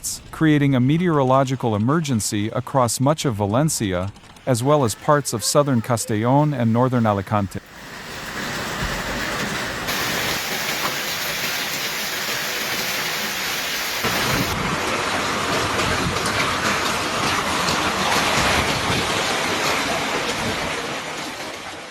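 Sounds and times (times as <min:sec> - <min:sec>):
heavy rain pouring: 0:04.6 - 0:21.9.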